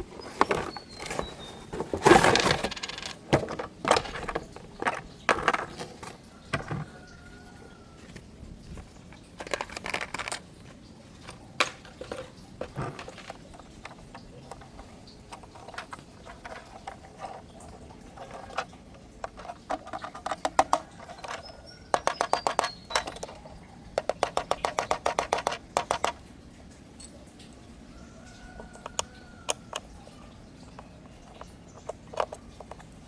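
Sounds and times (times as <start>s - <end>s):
toy mechanism clicking: 9.4s - 10.5s, 11.2s - 17.4s, 18.1s - 26.2s, 28.8s - 30.0s, 30.7s - 33.0s.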